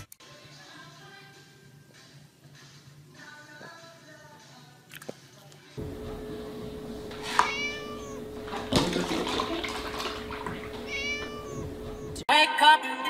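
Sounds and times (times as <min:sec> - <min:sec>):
steady hum: 0:05.8 - 0:12.2
milk pouring into plastic tub: 0:06.9 - 0:11.8
kitten meowing: 0:07.1 - 0:08.5, 0:10.4 - 0:12.2.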